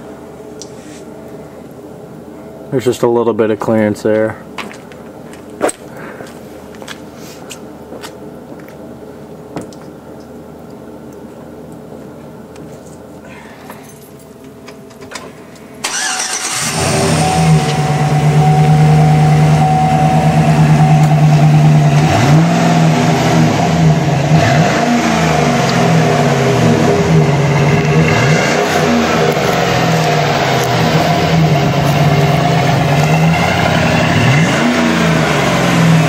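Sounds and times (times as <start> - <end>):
engine cranking and starting: 15.8 - 19.6
engine idling: 15.8 - 36.0.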